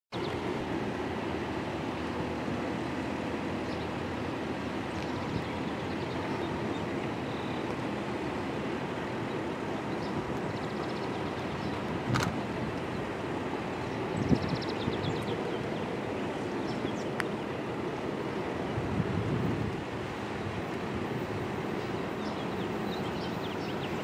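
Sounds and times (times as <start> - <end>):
distant train rumble: 0.2 - 24.0
sharp click: 12.1 - 12.3.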